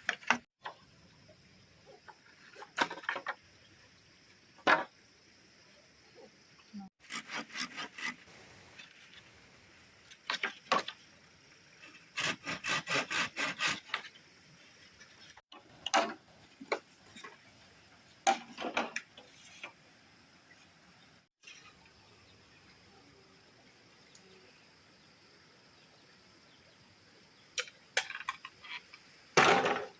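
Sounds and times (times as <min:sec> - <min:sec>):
wood being sawn by hand: 0:07.0 - 0:08.3, 0:11.9 - 0:14.1.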